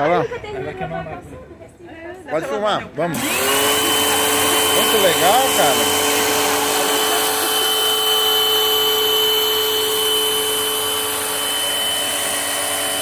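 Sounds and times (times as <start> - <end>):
pressure washer motor whine: 3.1 - 13.0.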